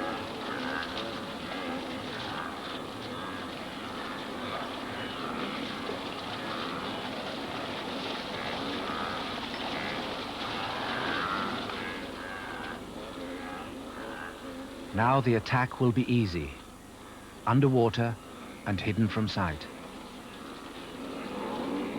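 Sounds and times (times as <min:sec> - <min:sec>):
herd splashing in river: 0:00.0 - 0:14.4.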